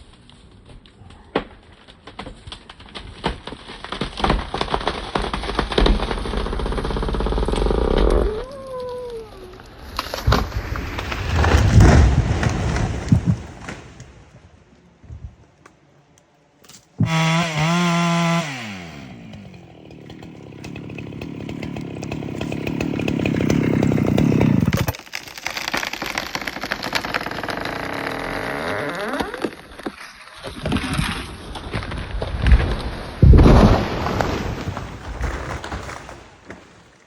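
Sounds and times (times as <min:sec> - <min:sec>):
chainsaw revving and cutting: 0:17.0 - 0:25.0, 0:25.6 - 0:29.5.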